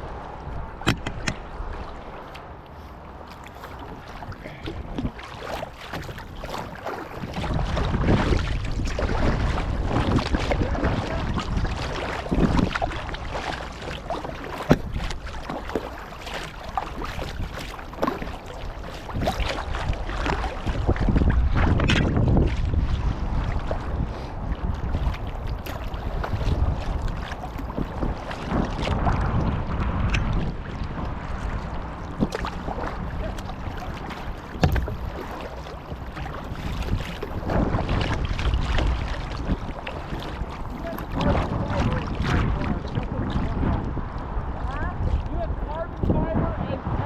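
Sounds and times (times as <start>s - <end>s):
wind buffeting microphone: 0.0s - 2.2s, 3.0s - 47.0s
kayak paddles splashing: 0.0s - 47.0s
water lapping at hulls: 0.0s - 47.0s.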